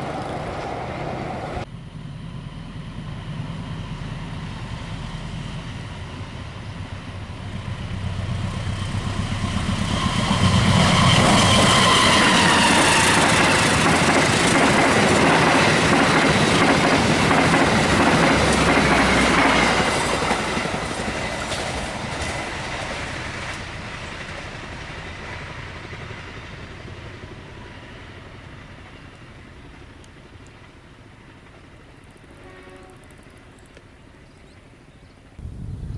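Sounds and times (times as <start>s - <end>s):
train passing at speed: 0.0s - 35.9s.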